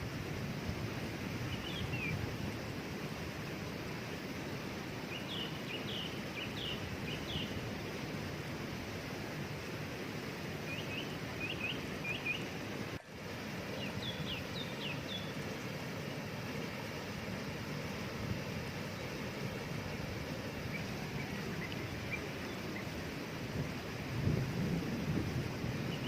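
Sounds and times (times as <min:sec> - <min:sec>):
waterfall rushing: 0:00.0 - 0:26.0
small bird chirping: 0:10.7 - 0:12.5, 0:13.7 - 0:15.8, 0:20.4 - 0:23.0.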